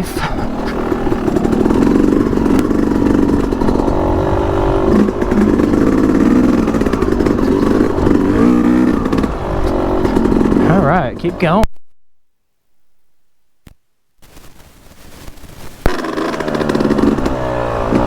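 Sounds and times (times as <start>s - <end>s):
dirt bike engine at low revs: 0.0s - 11.7s, 15.8s - 18.0s.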